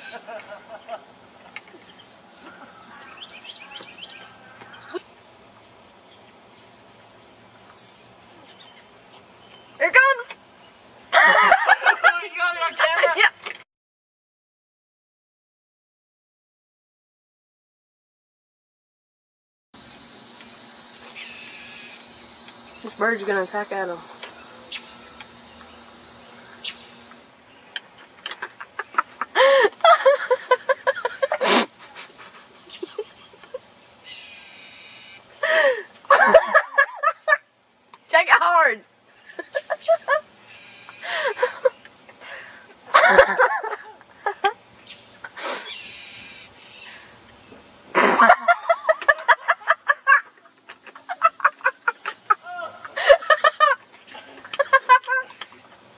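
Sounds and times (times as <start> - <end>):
bird squawking: 2.5 - 5.0, 26.3 - 27.1, 34.0 - 35.3, 40.5 - 41.6, 45.6 - 47.0
high insect buzz: 19.8 - 29.4, 30.5 - 35.4, 37.2 - 42.9, 44.1 - 52.5.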